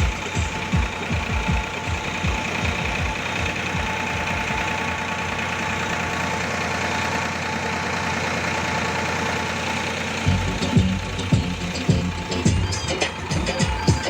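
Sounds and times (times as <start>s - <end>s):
diesel tractor engine running: 0.0s - 14.0s.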